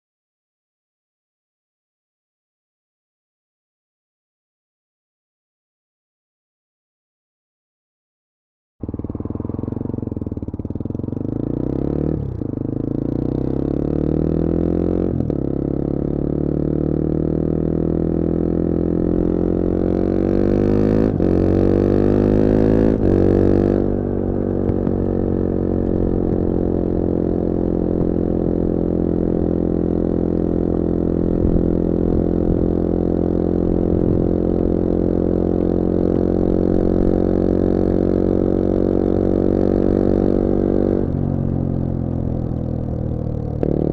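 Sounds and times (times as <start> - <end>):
motorcycle engine accelerating: 8.8 - 43.9.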